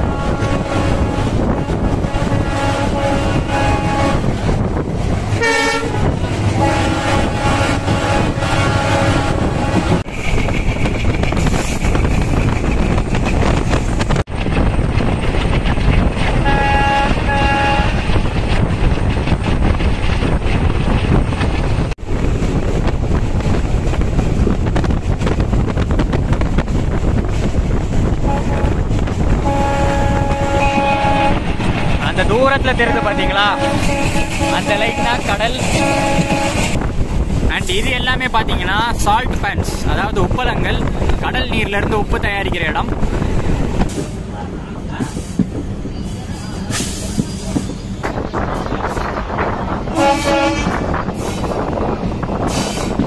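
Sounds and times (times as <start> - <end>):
train horn blasts: 0.0 - 4.3, 5.4 - 10.1, 16.4 - 18.1, 28.2 - 31.6, 32.7 - 36.8, 49.9 - 51.0
train wind and wheel noise: 0.0 - 53.0.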